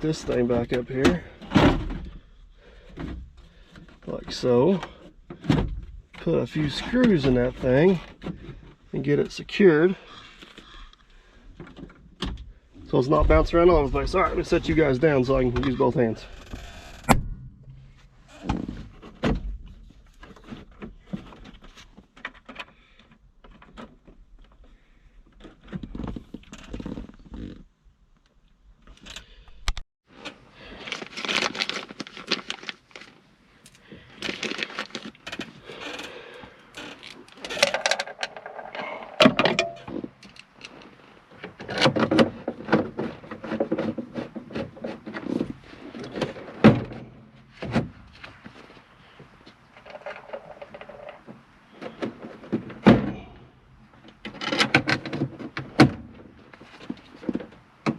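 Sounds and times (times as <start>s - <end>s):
plastic scraping and rattling: 30.1s - 48.8s, 49.6s - 53.3s, 53.9s - 57.9s.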